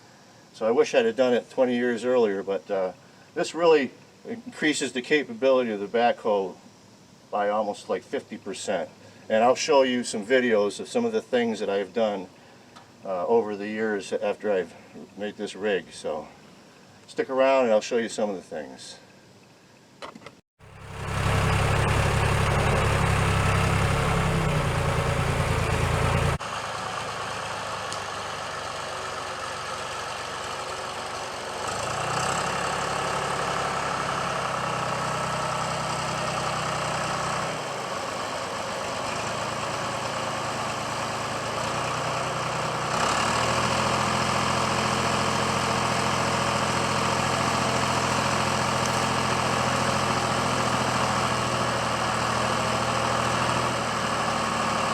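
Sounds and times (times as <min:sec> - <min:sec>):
backhoe engine running: 0:20.6 - 0:54.9.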